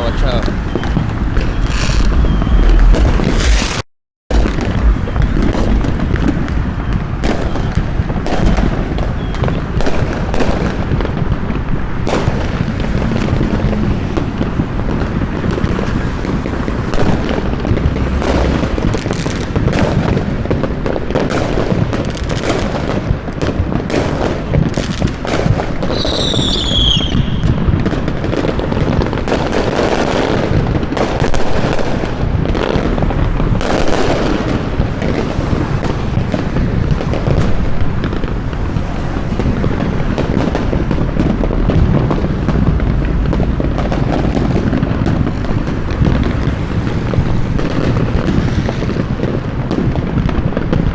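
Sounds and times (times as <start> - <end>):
fireworks booming and cracking: 0.0 - 50.9
whistling firework: 0.0 - 50.9
low rumble: 0.2 - 6.6, 17.0 - 19.8.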